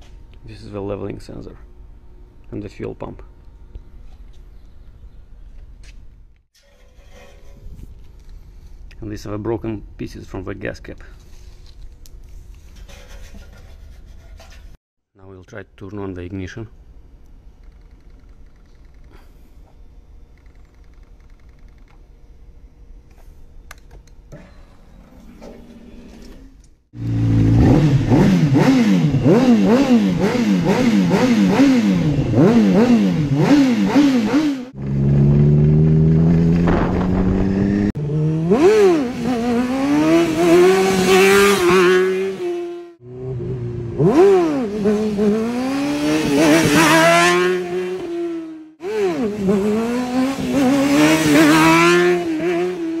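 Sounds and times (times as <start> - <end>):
motorcycle engine revving: 26.9 - 53.0.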